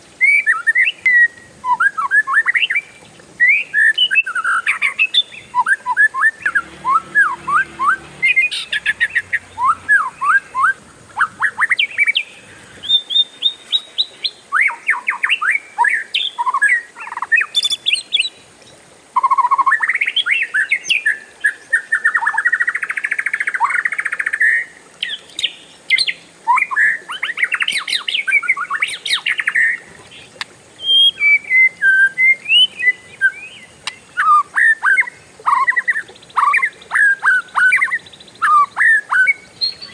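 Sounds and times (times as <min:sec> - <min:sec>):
bird singing whistles and trills: 0:00.2 - 0:18.4, 0:19.2 - 0:39.9.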